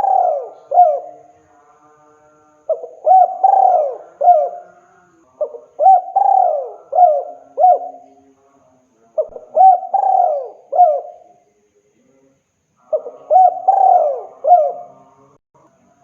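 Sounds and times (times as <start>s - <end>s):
dove cooing: 0.0s - 1.3s, 2.7s - 4.8s, 5.4s - 8.2s, 9.2s - 11.3s, 12.9s - 15.0s.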